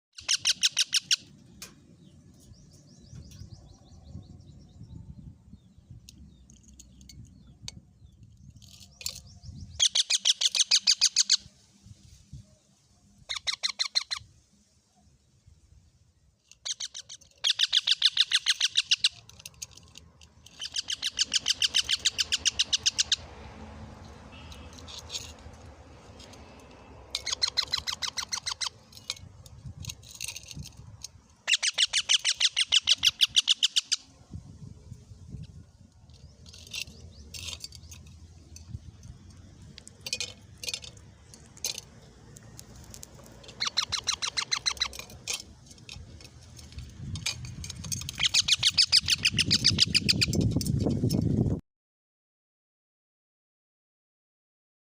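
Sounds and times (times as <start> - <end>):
parrot shrill chirps: 0.2 - 1.3, 9.8 - 11.5, 13.3 - 14.3, 16.6 - 19.2, 20.5 - 23.2, 27.1 - 28.8, 31.4 - 34.1, 43.6 - 45.0, 48.1 - 50.3.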